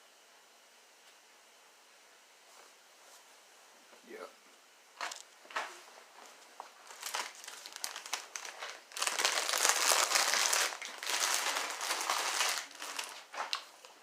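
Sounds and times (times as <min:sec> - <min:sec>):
plastic chip bag crinkling: 0:06.8 - 0:14.0.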